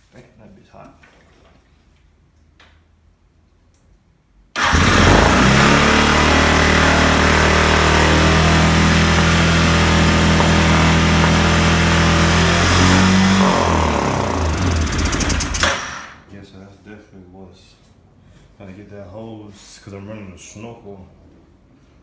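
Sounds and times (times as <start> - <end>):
atv engine fast idle: 4.6 - 16.2.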